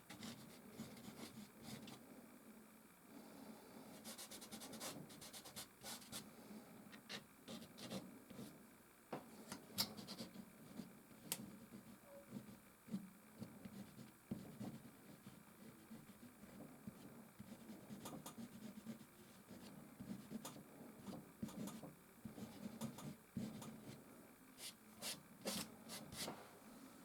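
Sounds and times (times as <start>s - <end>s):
pastel stick scratching on canvas: 9.8s - 24.0s.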